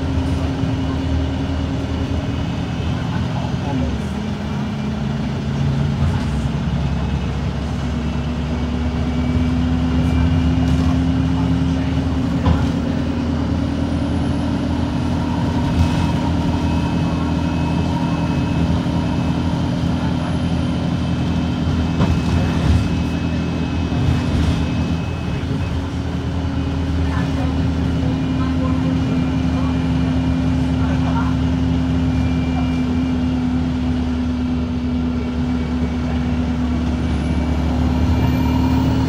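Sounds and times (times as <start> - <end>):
bus diesel engine running: 0.0 - 39.0.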